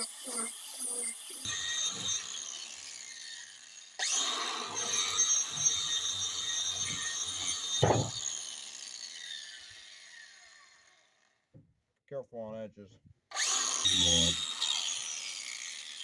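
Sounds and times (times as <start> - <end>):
angle grinder whining: 0.0 - 10.9, 13.3 - 16.0
heavy thump: 7.8 - 8.1
knocks against wood: 7.8 - 8.2.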